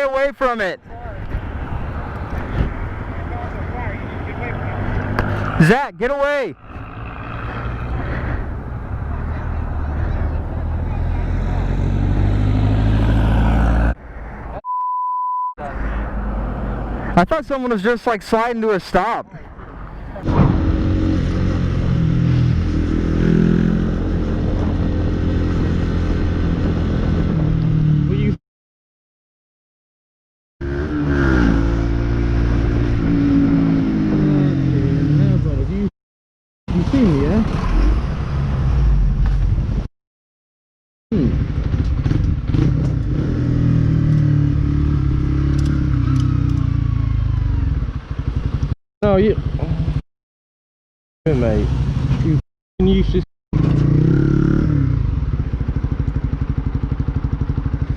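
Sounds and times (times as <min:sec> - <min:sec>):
motorcycle engine running: 0:46.1 - 0:50.0, 0:53.6 - 0:57.9.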